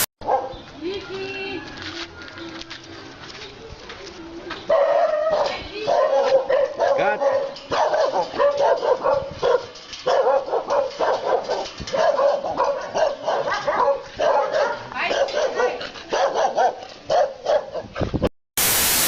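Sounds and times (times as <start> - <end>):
loud hiss: 18.6 - 19.0.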